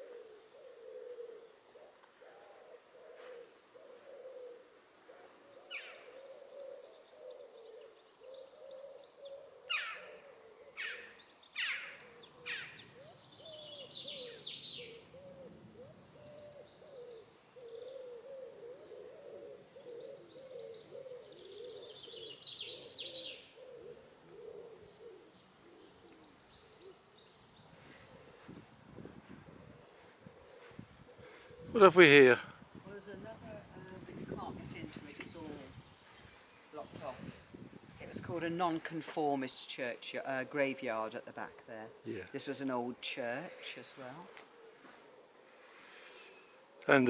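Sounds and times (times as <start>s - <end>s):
low wavering hoot-like bird call: 0.0s - 27.3s.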